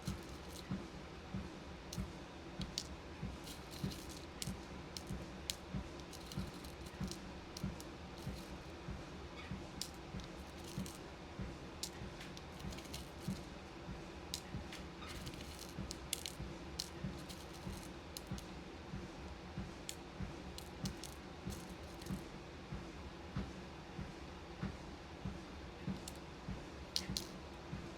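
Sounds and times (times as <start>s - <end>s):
beads clicking and rattling: 0.0s - 0.8s, 1.9s - 8.8s, 9.7s - 11.1s, 11.7s - 13.6s, 14.3s - 18.6s, 19.8s - 22.2s, 25.9s - 26.2s, 26.9s - 27.5s
footsteps on walking pad: 0.0s - 18.5s
walking pad hum: 0.0s - 22.3s.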